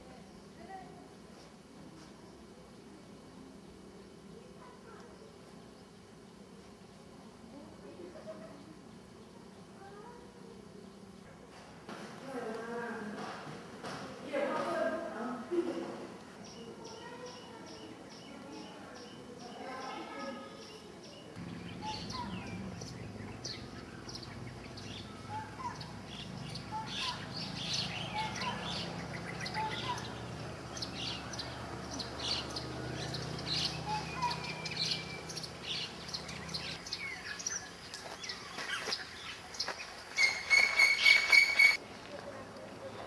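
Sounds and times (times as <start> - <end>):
small birds chirping: 15.5 - 43.0
low steady hum: 21.3 - 38.2.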